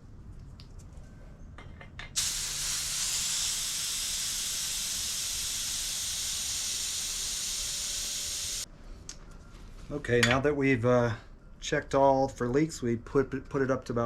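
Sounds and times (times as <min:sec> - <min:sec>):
compressed air hissing: 0:02.2 - 0:08.7.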